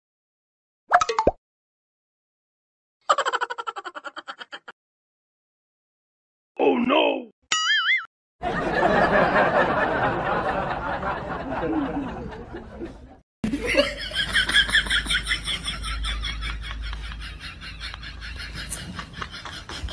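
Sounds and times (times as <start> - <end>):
people laughing: 8.4 - 19.9.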